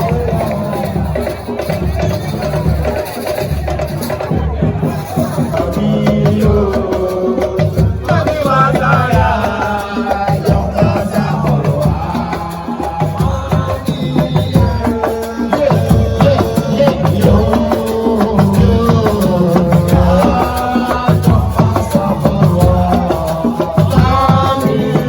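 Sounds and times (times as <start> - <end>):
fast hand-drum percussion: 0.0 - 25.0
person singing: 5.0 - 25.0.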